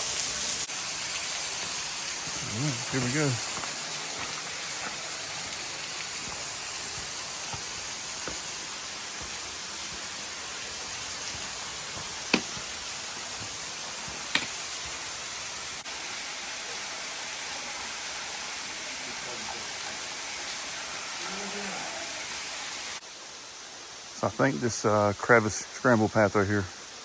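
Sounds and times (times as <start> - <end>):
waterfall rushing: 1.7 - 15.8, 21.1 - 22.5.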